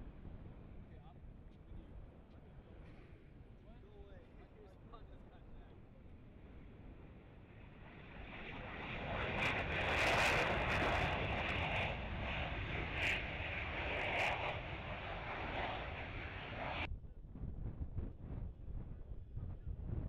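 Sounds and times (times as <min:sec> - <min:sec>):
jet engine roar: 0:06.4 - 0:16.9.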